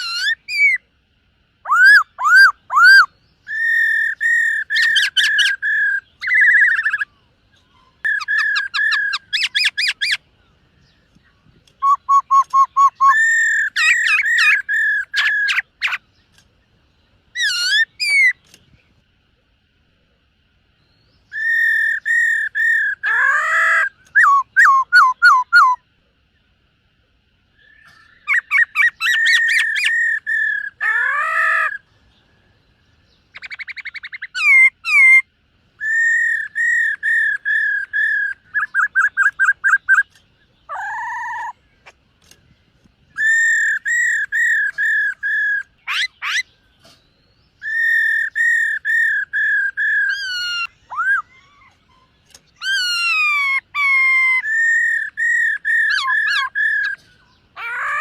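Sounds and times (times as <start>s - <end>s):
bird singing whistled phrases: 1.6s - 10.2s, 11.8s - 16.0s, 21.0s - 25.8s, 33.3s - 41.6s, 43.2s - 46.5s, 47.6s - 52.0s, 52.6s - 57.0s.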